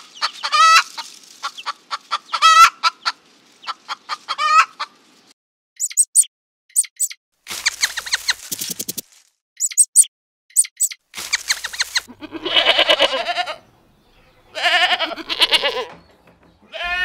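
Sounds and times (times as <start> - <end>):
goats bleating: 12.1 - 13.7, 14.5 - 15.9, 16.7 - 17.0.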